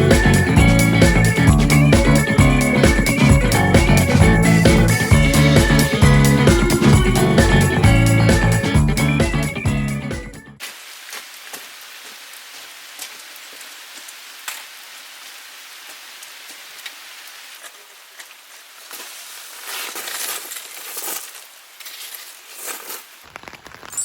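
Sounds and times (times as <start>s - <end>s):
raindrops ticking on surfaces: 10.6s - 21.8s, 22.9s - 24.0s
steady rain falling: 10.6s - 24.0s.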